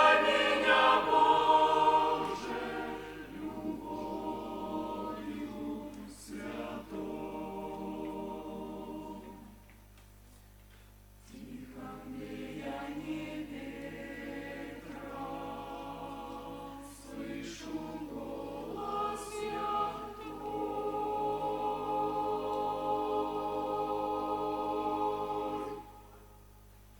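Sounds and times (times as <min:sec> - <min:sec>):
choir singing a hymn: 0:00.0 - 0:09.8, 0:11.2 - 0:26.4.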